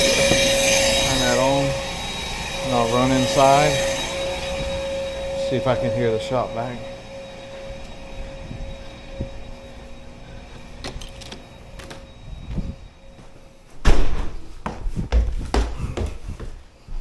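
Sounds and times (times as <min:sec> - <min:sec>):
faint steady hum: 0:00.0 - 0:13.8
door sliding: 0:10.4 - 0:13.0
loud thumps: 0:13.8 - 0:14.5.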